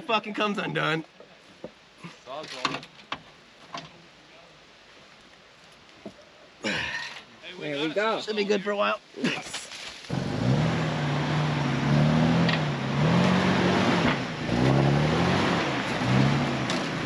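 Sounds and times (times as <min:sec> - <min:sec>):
car engine revving: 0:10.1 - 0:17.0.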